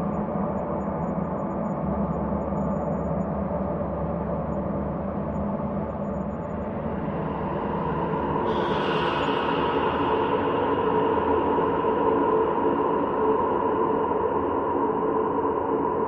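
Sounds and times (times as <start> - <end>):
ambient drone: 0.0 - 16.0.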